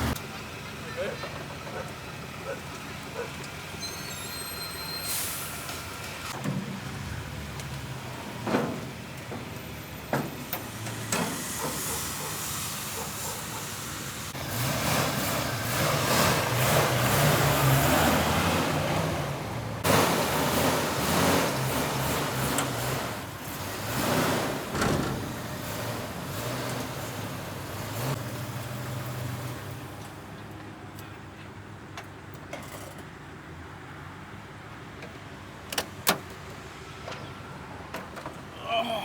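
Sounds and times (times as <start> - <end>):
vehicle engine running: 0.0 - 3.7.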